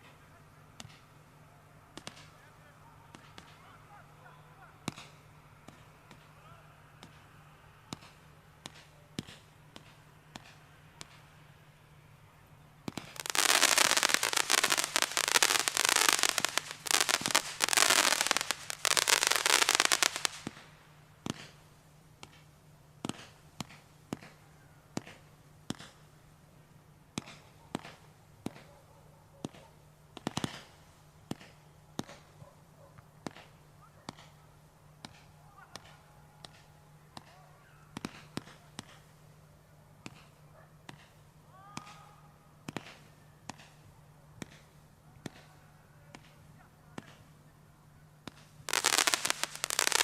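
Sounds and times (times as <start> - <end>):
firework crackling and pops: 12.8 - 21.6, 30.2 - 32.2, 48.2 - 50.0.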